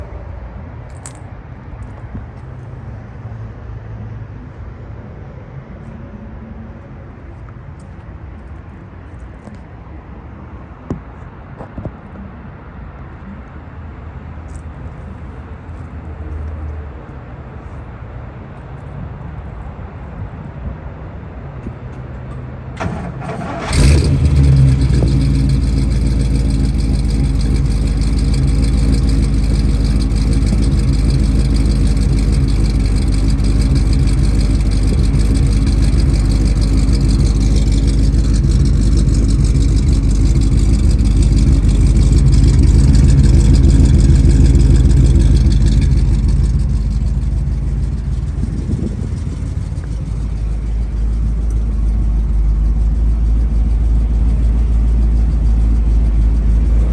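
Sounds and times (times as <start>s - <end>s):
starter motor cranking: 22.8s - 50.6s
car engine idling: 22.8s - 56.9s.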